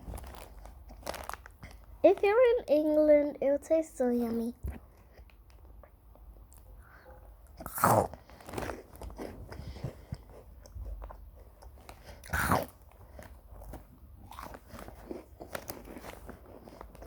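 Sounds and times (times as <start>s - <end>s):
chewing crunchy crackers: 7.5s - 17.0s.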